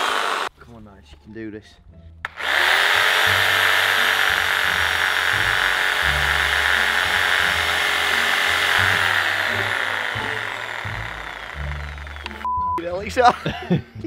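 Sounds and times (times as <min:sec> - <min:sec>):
electric saw cutting wood: 0:00.0 - 0:00.5, 0:02.3 - 0:12.5
background music with bass: 0:00.6 - 0:14.0.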